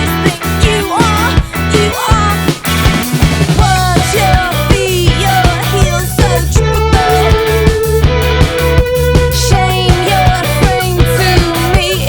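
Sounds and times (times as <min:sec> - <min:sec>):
bass guitar: 0:00.0 - 0:12.0
electric guitar: 0:00.0 - 0:12.0
steady drum beat: 0:00.0 - 0:12.0.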